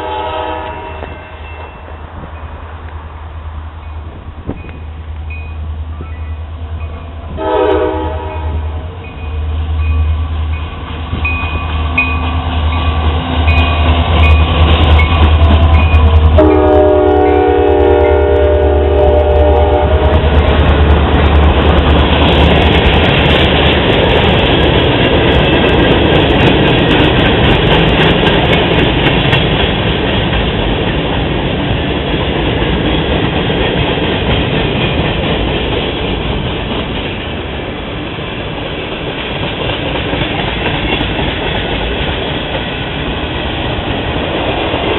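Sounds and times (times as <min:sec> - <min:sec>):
train horn chord: 0:00.0 - 0:01.6, 0:07.3 - 0:09.1, 0:15.7 - 0:20.4
diesel locomotive engine rumble: 0:00.0 - 0:44.9
freight cars clickety-clack on rails: 0:00.0 - 0:44.9.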